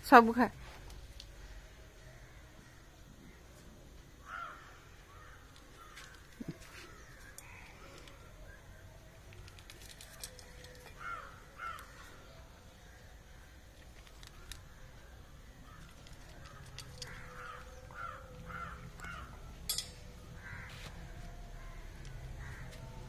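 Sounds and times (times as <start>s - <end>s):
faint bird calls: 4.2s - 19.6s
cat eating from metal bowl: 15.8s - 17.4s.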